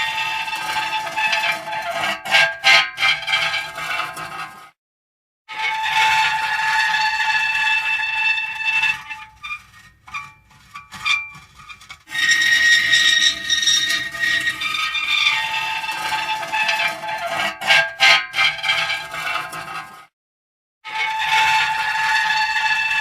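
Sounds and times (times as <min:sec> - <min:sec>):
metal creaking: 0:09.0 - 0:20.0.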